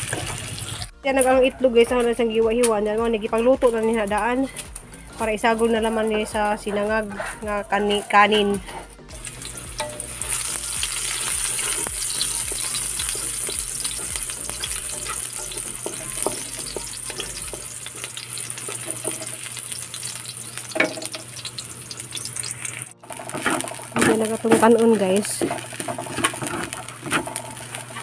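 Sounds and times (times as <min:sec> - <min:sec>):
onion and garlic sizzling in oil: 0:00.0 - 0:28.0
wooden spatula scraping a pan: 0:05.4 - 0:09.0, 0:10.3 - 0:19.5, 0:23.0 - 0:28.0.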